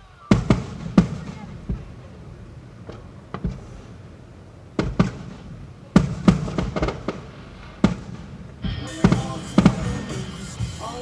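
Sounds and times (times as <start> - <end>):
fireworks bursting: 0.0 - 11.0
faint music: 8.6 - 11.0.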